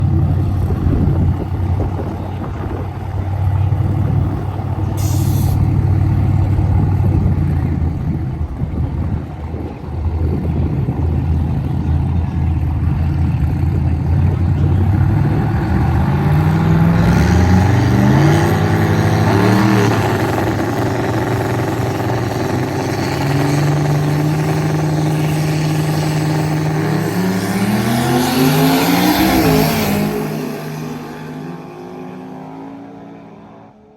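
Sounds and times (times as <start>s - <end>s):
low engine rumble: 0.0s - 28.2s
truck engine revving: 0.0s - 33.9s.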